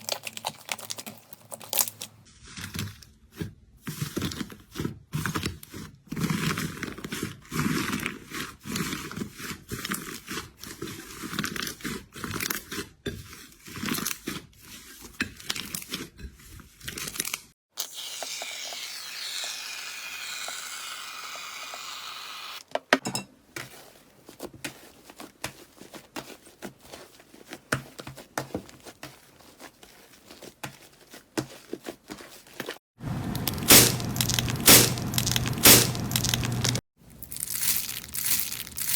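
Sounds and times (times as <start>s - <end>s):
slime crackling and popping: 0.0s - 2.8s, 33.1s - 38.9s.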